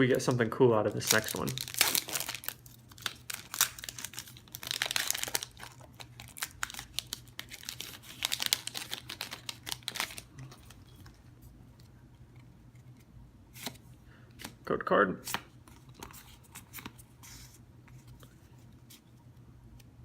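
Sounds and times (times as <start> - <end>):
foil wrapper crinkling and tearing: 0.9 - 10.7.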